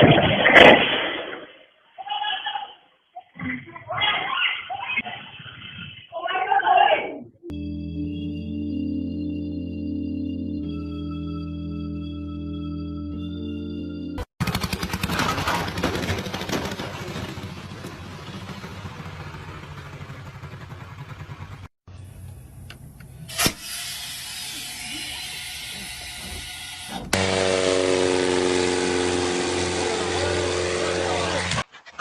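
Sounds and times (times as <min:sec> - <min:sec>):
music with sustained tones: 0:07.5 - 0:14.2
fast engine pulses: 0:14.4 - 0:21.7, 0:27.1 - 0:31.6.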